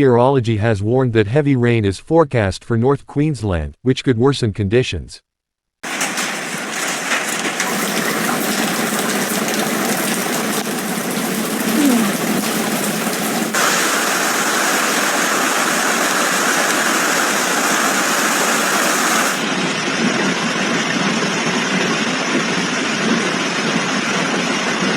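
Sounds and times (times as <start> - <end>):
rush of storm water: 5.8 - 20.9.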